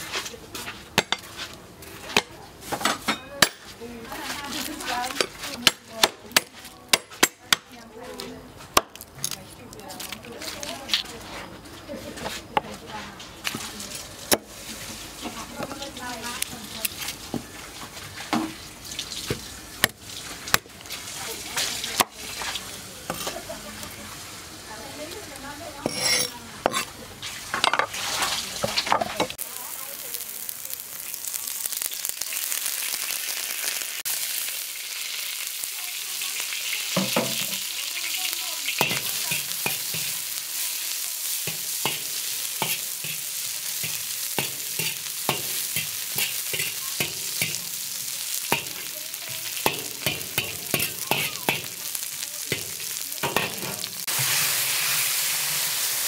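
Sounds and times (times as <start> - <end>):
garlic sizzling in oil: 0.0 - 7.1, 8.5 - 56.0
metal ladle scraping wok: 25.7 - 29.4, 37.0 - 55.6.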